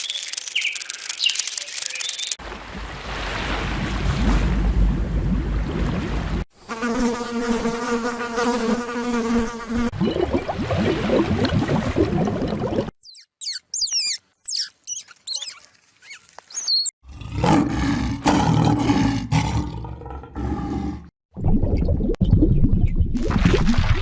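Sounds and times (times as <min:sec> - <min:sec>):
high sliding chirps and squeaks: 0:00.0 - 0:02.4, 0:13.0 - 0:17.0.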